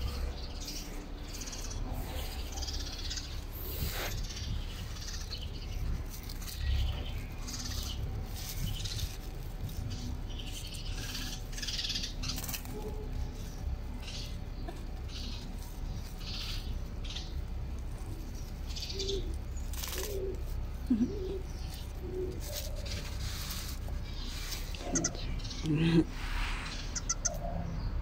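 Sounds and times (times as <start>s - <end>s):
low wavering cooing: 10.8s - 28.0s.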